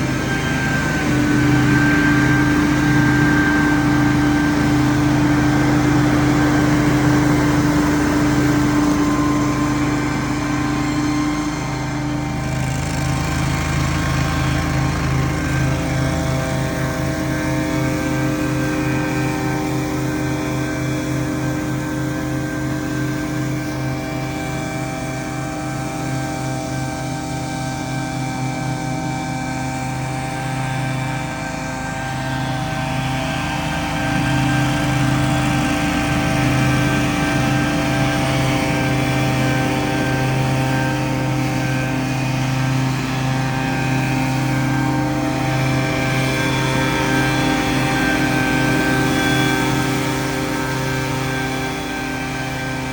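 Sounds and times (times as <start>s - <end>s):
small gasoline engine running: 0.0s - 52.9s.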